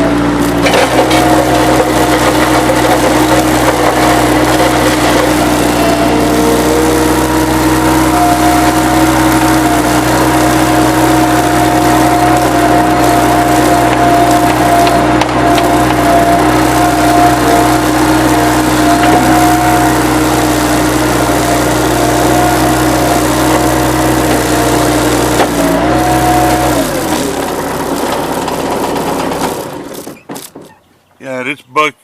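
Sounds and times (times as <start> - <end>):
hydraulic pump whining: 0.0 - 30.8.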